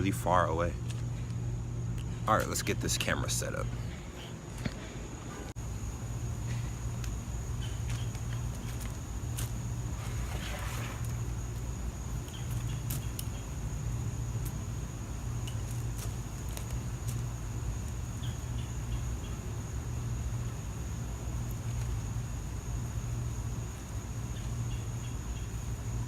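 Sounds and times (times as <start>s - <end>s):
low hum: 0.0s - 12.3s.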